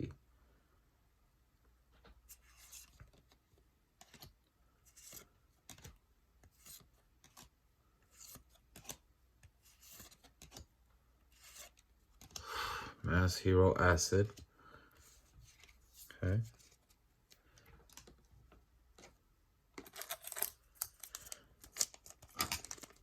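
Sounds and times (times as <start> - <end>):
trading cards rustling and swishing: 2.1 - 3.4, 4.0 - 12.5, 14.2 - 19.2, 19.8 - 23.0.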